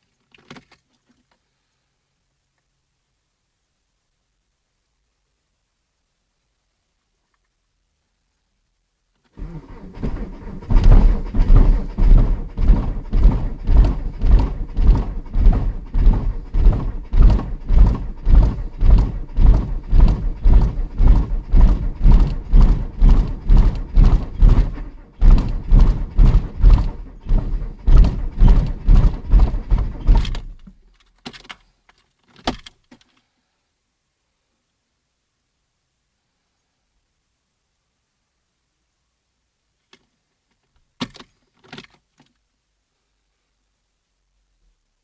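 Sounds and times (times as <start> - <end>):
diesel engine cranking on starter: 9.4 - 30.7
short knocks: 9.9 - 30.7.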